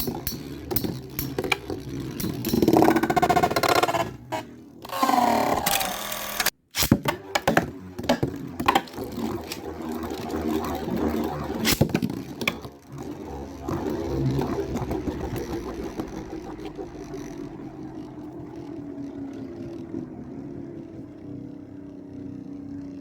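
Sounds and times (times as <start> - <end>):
spinning tops clacking together: 0.0 - 3.9
spinning tops whirring: 0.0 - 23.0.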